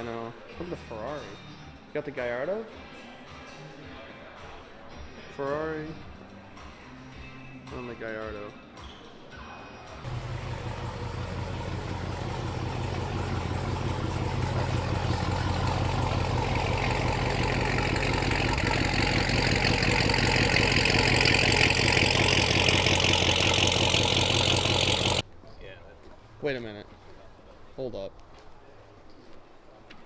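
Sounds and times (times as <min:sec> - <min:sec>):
sports car engine running: 0:10.1 - 0:25.2.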